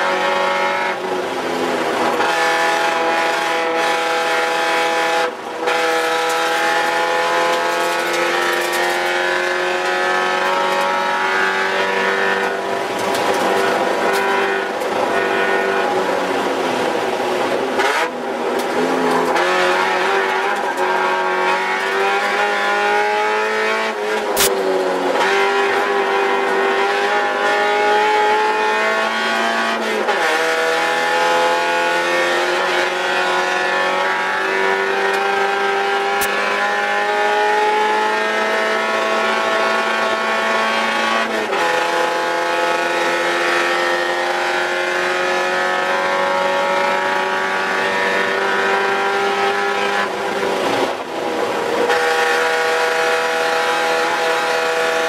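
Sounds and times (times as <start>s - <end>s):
race car engine revving: 0.0s - 55.0s
sharp click: 24.4s - 24.6s.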